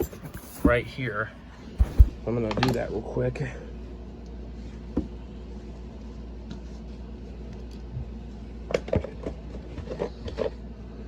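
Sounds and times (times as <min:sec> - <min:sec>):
low steady hum: 0:00.0 - 0:08.6.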